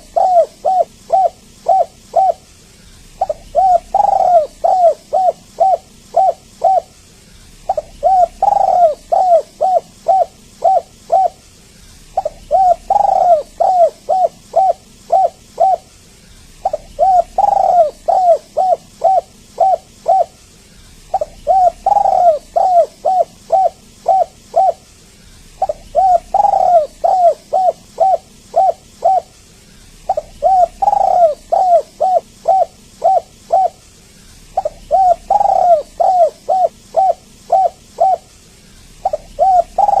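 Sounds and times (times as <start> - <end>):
dove cooing: 0.0 - 20.4, 21.0 - 24.9, 25.5 - 29.4, 30.0 - 33.8, 34.4 - 40.0.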